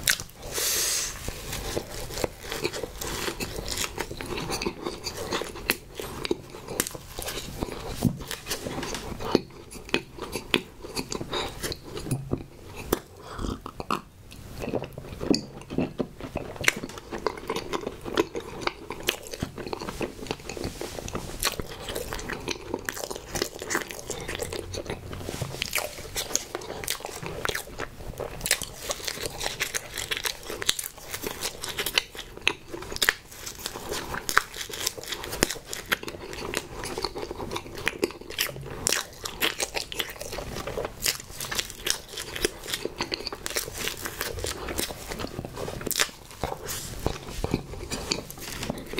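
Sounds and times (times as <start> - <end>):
biting and chewing snack cakes: 0.0 - 48.9.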